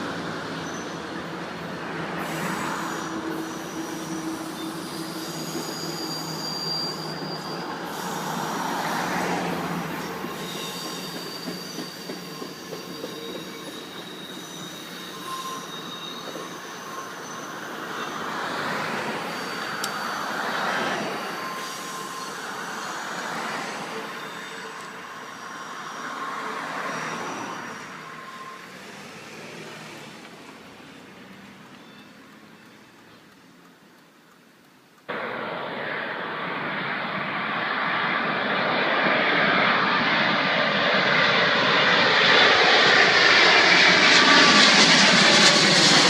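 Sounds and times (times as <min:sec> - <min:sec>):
train rumbling past: 0:00.0 - 0:32.6, 0:35.1 - 0:46.0
wheels squealing on rails: 0:00.0 - 0:33.2, 0:35.8 - 0:46.0.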